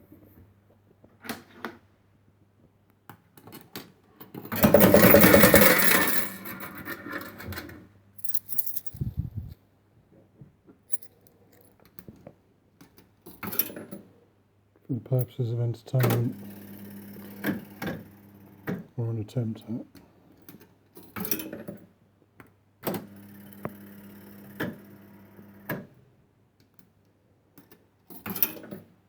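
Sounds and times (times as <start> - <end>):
coins clattering down: 4.5 - 7.4, 8.2 - 9.0.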